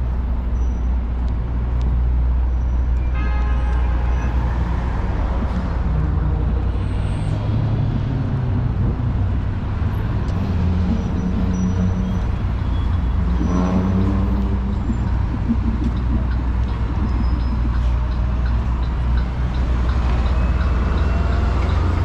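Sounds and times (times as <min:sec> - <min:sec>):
vehicle engines passing and idling: 0:00.0 - 0:22.0.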